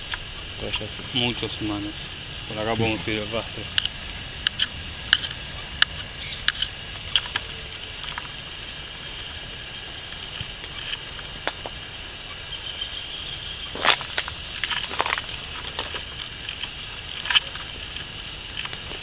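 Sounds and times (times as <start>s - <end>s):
high-pitched background drone: 0.0s - 19.0s
footsteps on dry leaves: 13.3s - 19.0s.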